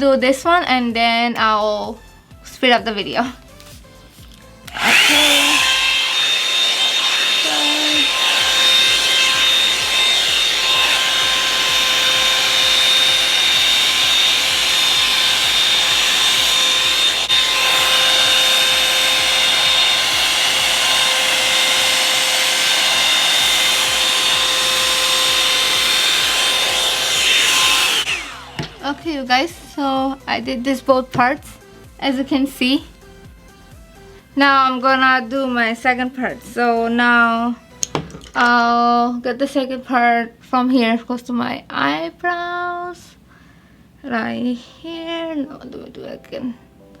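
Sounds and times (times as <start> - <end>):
hot-air brush dryer running: 4.6 - 30.6.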